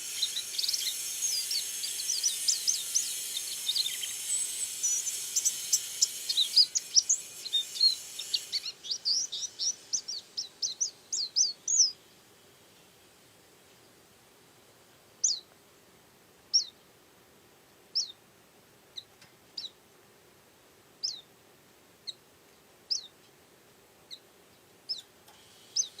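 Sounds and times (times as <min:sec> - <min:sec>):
bird giving high chirps: 0:00.0 - 0:12.0, 0:15.2 - 0:15.5, 0:16.5 - 0:16.7, 0:18.0 - 0:18.2, 0:21.0 - 0:21.2, 0:22.9 - 0:23.1, 0:25.7 - 0:26.0.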